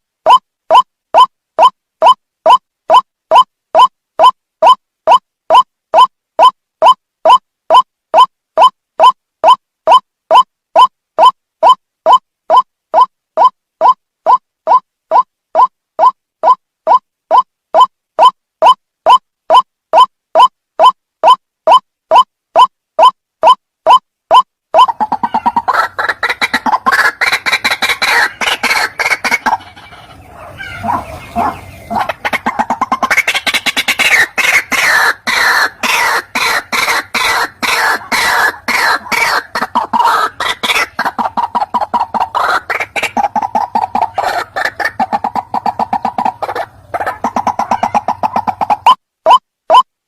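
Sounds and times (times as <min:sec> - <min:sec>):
waterhen calling harsh notes: 0:23.9 - 0:49.8.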